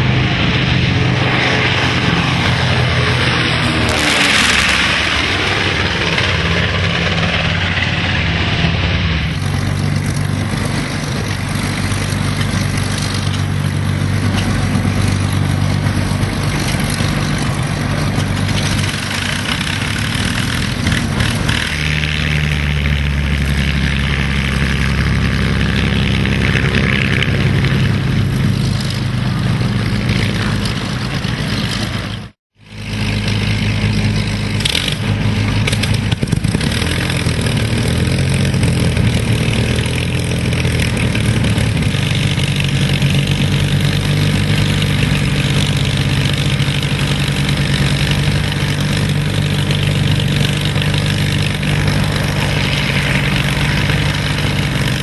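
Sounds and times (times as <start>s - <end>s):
piston aircraft engines running: 0.0s - 55.0s.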